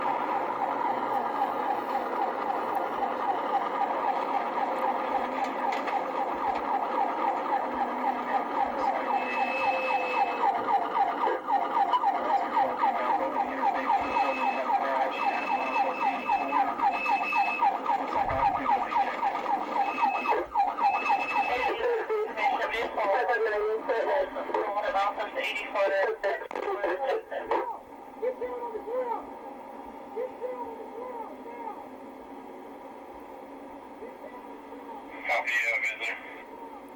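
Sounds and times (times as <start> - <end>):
police siren yelping: 0.0 - 29.4.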